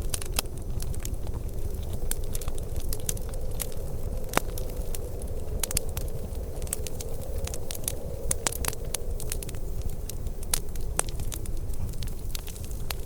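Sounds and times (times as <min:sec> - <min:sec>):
low steady rumble: 0:00.0 - 0:13.0
wood fire crackling: 0:00.0 - 0:13.0.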